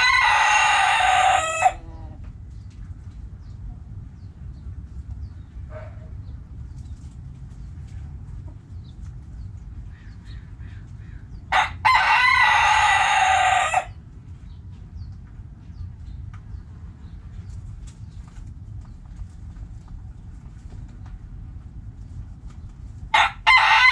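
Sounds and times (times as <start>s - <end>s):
rooster crowing: 0.0s - 2.2s, 11.5s - 14.0s, 23.1s - 23.9s
faint hen clucks: 0.0s - 4.4s, 7.6s - 16.5s
steady low rumble: 0.0s - 23.9s.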